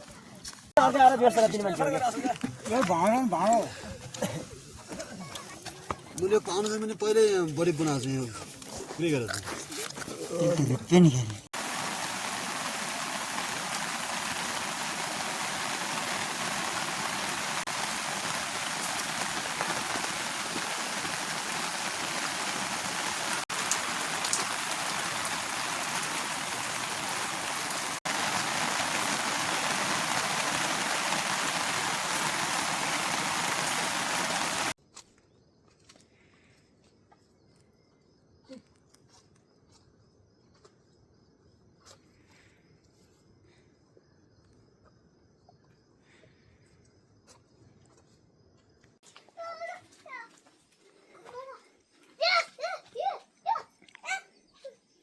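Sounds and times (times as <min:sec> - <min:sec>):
steady rain: 0:10.4 - 0:34.8.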